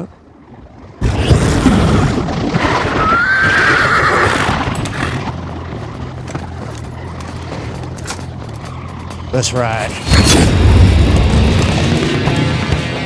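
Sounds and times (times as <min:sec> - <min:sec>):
horse neighing: 0:02.6 - 0:05.4
low rumbling drone: 0:04.4 - 0:13.0.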